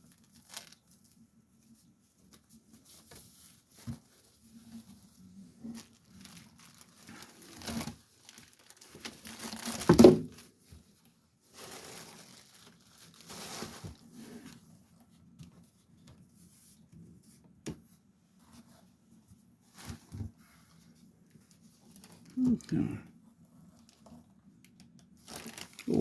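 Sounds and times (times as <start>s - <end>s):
packaging crinkling: 0.1s - 1.0s, 5.6s - 10.5s, 11.5s - 14.1s, 25.2s - 26.0s.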